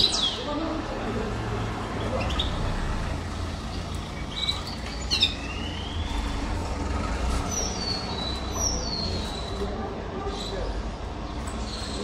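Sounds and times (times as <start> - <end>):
canary chirping and whistling: 4.3 - 6.3.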